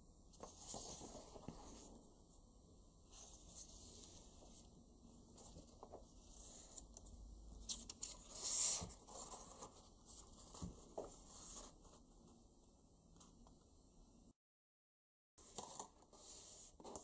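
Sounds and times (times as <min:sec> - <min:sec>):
paper rustling and crinkling: 0:00.4 - 0:01.9, 0:07.6 - 0:12.0, 0:15.4 - 0:17.0.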